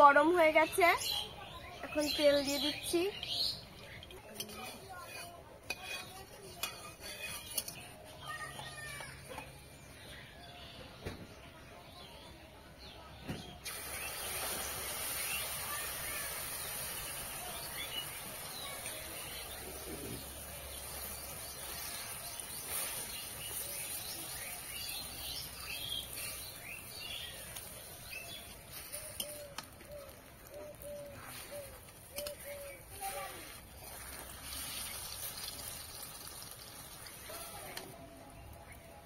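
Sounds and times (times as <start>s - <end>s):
birds chirping: 0.0s - 39.0s
batter sizzling in hot oil: 2.2s - 7.9s, 13.6s - 29.7s, 31.7s - 37.9s.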